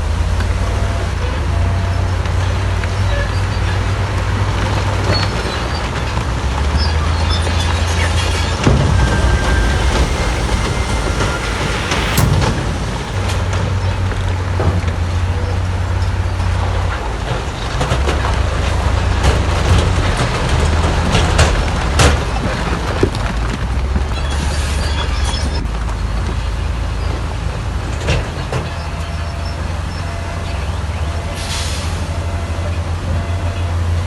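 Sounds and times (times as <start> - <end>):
heavy diesel machinery engine: 8.1 - 14.9
short hiss: 8.8 - 13.8.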